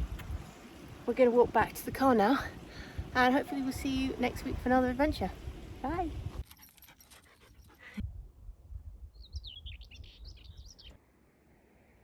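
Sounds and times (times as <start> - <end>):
wind rumble on microphone: 0.0 - 6.4, 8.0 - 10.9
small bird chirping: 9.1 - 11.0.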